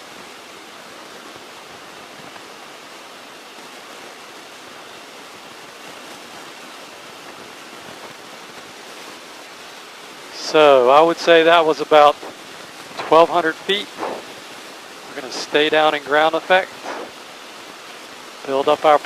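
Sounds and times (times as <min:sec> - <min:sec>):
airplane cockpit rushing hiss: 0:10.3 - 0:17.3.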